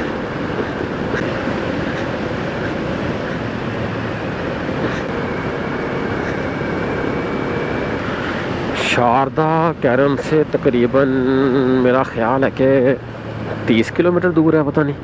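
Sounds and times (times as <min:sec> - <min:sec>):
wind noise: 0:00.0 - 0:09.2
motorcycle engine hum: 0:00.0 - 0:15.0
road noise: 0:00.0 - 0:15.0.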